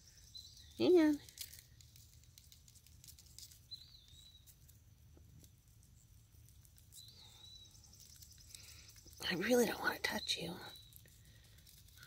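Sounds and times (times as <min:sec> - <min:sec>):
bird chirps: 0:00.0 - 0:01.2, 0:03.4 - 0:04.6, 0:06.9 - 0:11.4.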